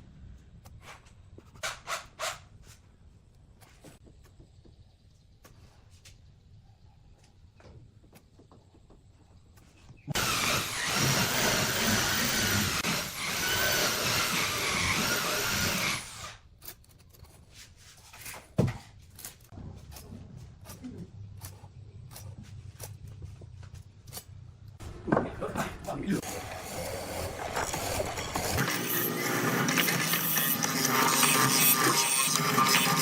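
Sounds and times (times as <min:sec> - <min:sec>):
electric power tool whining: 0:10.1 - 0:16.4, 0:26.2 - 0:33.0.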